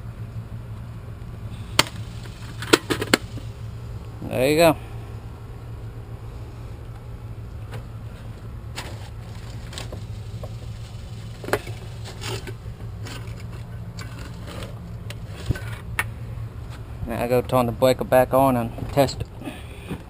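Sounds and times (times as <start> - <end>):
steady low hum: 0.0 - 20.0
clicks and scrapes of hand work: 11.4 - 15.9.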